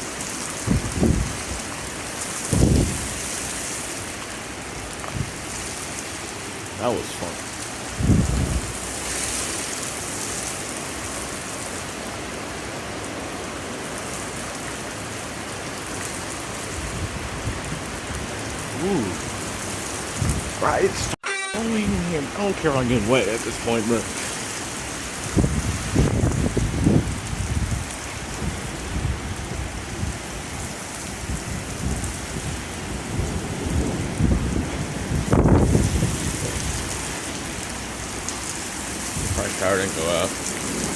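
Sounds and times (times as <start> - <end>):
heavy rain pouring: 0.0 - 40.9
low thunder rumbling: 7.9 - 8.9, 25.2 - 30.2, 31.3 - 37.5.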